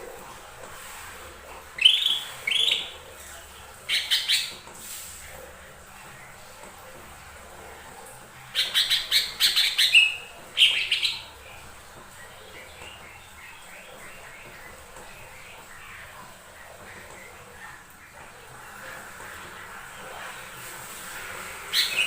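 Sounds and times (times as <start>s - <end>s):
bird singing rapid chirps: 1.8s - 3.0s, 8.6s - 11.4s, 21.7s - 22.0s
faint bird chirping: 1.8s - 3.0s.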